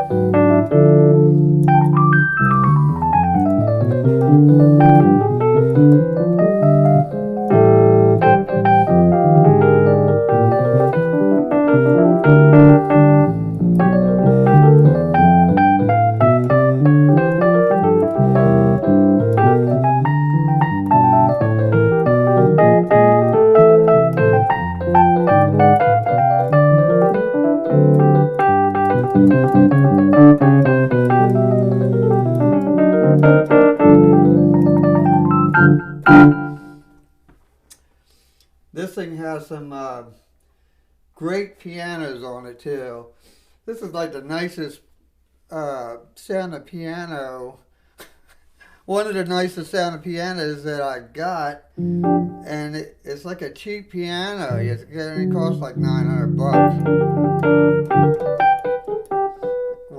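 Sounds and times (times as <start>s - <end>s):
electric piano chords and bass line: 0.0s - 37.0s, 51.7s - 52.8s, 54.1s - 59.9s.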